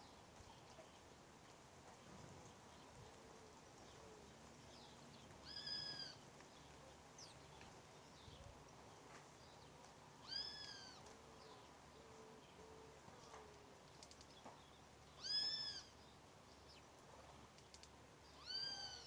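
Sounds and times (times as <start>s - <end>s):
faint bird chirps: 3.9s - 6.2s, 14.0s - 16.1s, 17.6s - 19.0s.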